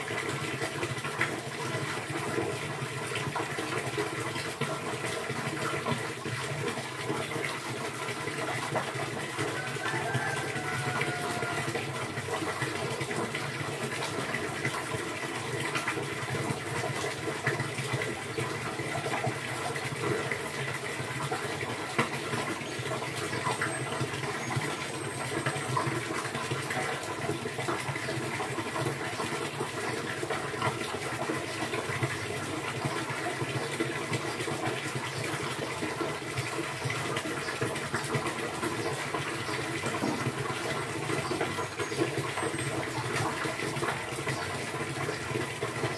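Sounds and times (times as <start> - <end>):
running water rushing: 0.0 - 45.9.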